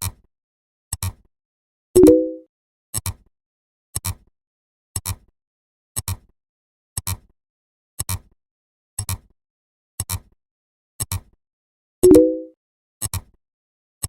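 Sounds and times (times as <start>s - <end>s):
brief pitched tone: 2.0s - 2.4s, 12.0s - 12.5s.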